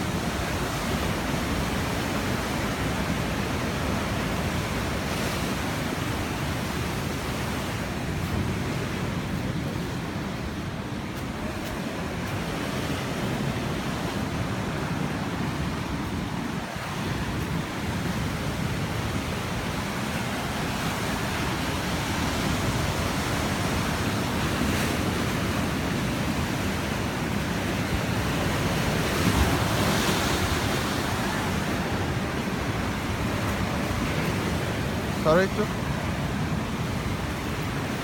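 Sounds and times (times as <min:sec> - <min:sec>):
waves breaking against rocks: 0:00.1 - 0:38.0.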